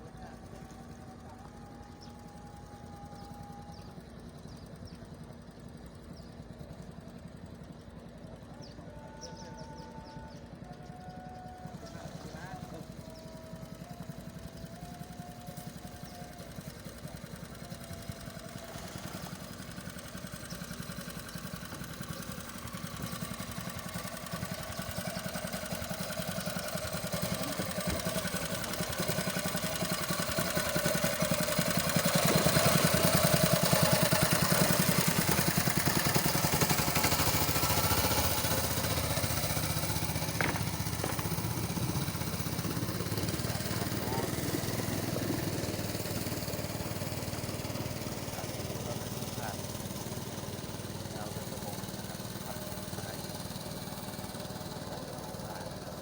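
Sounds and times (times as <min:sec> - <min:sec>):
small boat engine running: 0:00.0 - 0:56.0.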